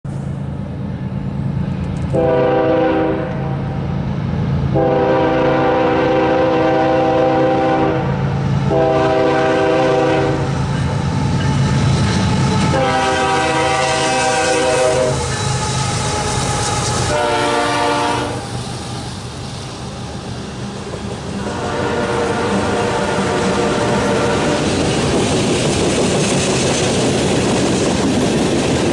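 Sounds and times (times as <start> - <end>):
train rumbling: 0.0 - 28.9
locomotive air horn: 2.1 - 3.8, 4.7 - 10.6, 12.6 - 18.6, 21.4 - 24.7.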